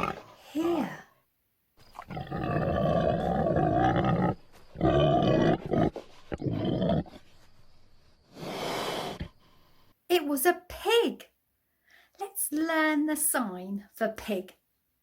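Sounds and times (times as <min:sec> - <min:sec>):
pig calling: 0:02.0 - 0:07.2.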